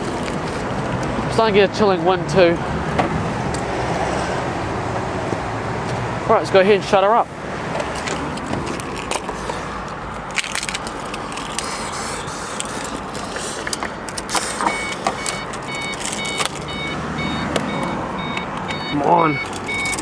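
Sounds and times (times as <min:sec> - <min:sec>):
car engine idling: 0:06.6 - 0:20.0
car warning chime beeping: 0:11.7 - 0:20.0.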